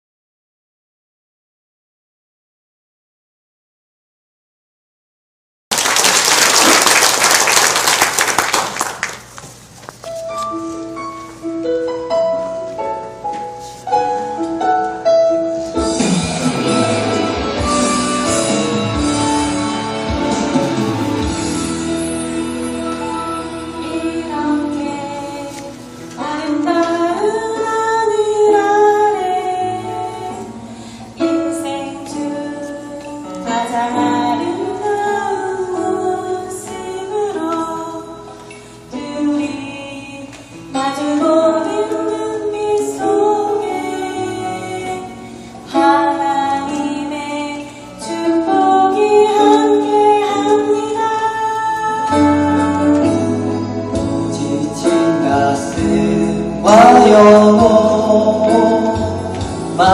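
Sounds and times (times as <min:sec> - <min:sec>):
instrumental accompaniment: 0:09.4 - 0:59.9
women singing: 0:39.0 - 0:53.5, 0:54.2 - 0:59.9.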